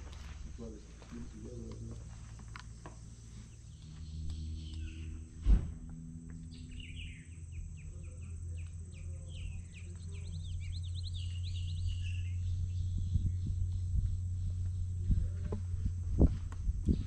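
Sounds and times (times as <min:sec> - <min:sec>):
steady low rumble: 0:00.0 - 0:17.0
birds chirping and whistling: 0:02.8 - 0:05.4, 0:06.2 - 0:15.3.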